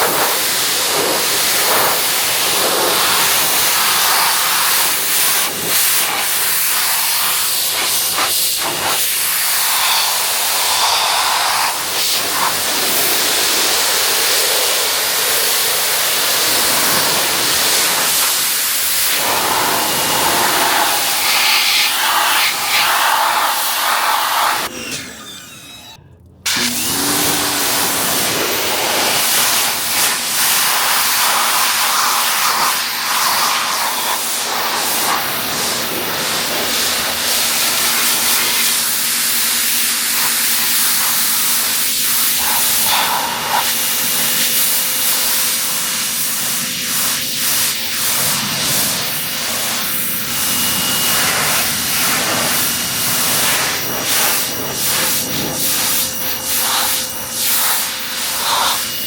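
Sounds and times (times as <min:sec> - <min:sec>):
pressure washer water jet hissing: 0:00.0 - 0:25.5, 0:26.5 - 0:59.0
machine humming: 0:24.6 - 0:30.0.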